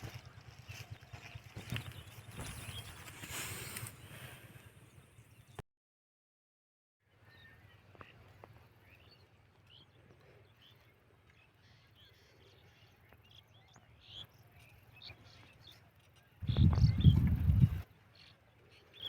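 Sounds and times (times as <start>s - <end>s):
faint bird chirps: 7.2s - 19.0s.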